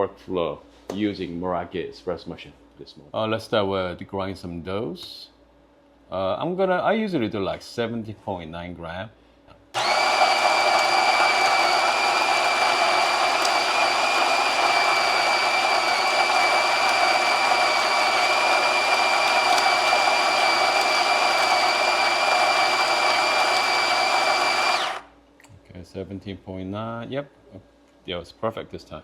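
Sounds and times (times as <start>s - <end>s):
electric coffee grinder: 9.8s - 25.1s.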